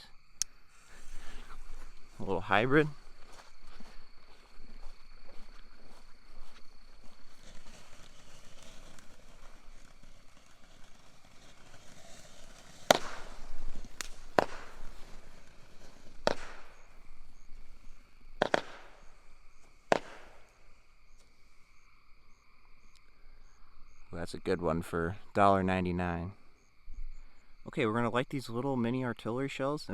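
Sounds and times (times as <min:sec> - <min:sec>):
firework cake sharp bangs: 0:07.0 - 0:20.8.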